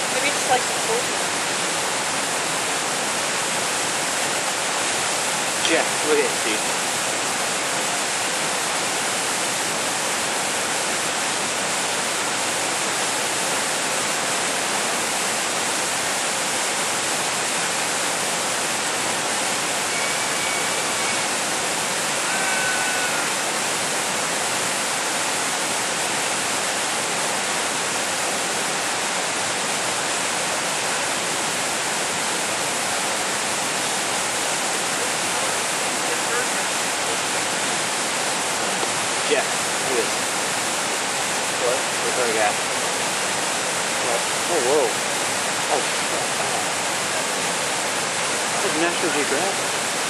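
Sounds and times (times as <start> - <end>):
rushing water: 0.0 - 50.0
faint short whistles: 19.9 - 21.3.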